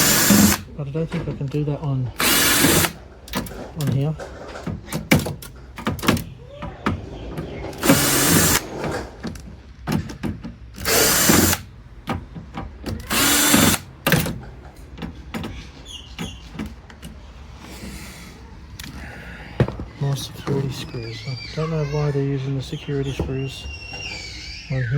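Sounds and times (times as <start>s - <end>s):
power drill whirring: 0.0s - 0.7s, 2.1s - 3.0s, 7.7s - 8.8s, 10.8s - 11.7s, 13.0s - 14.2s.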